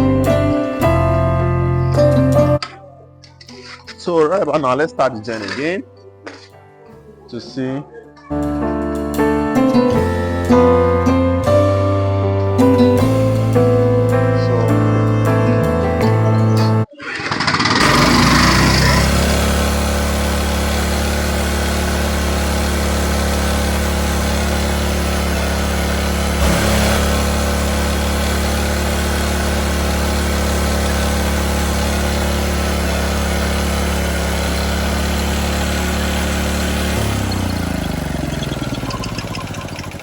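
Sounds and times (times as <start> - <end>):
generator engine running: 9.8 - 16.0, 17.1 - 40.0
engine knock: 17.1 - 40.0.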